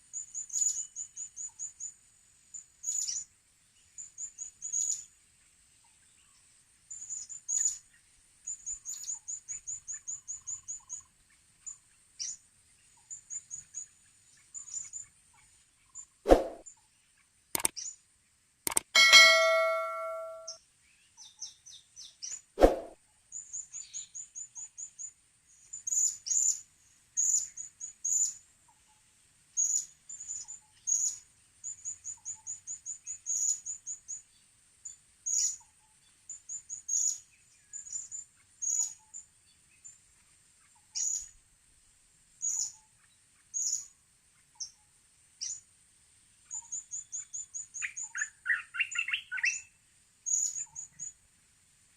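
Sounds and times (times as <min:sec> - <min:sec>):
metallic ding: 0:18.7 - 0:20.6.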